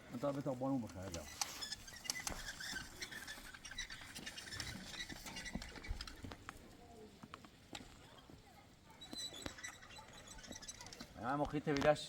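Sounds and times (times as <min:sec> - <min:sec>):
faint high chirps: 0:08.9 - 0:11.1.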